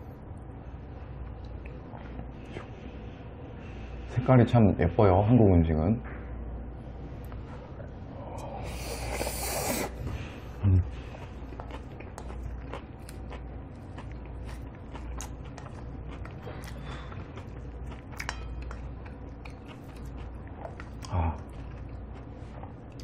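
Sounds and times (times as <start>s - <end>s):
man slurping food: 8.6s - 10.1s
wet chewing and crunching: 8.7s - 23.0s.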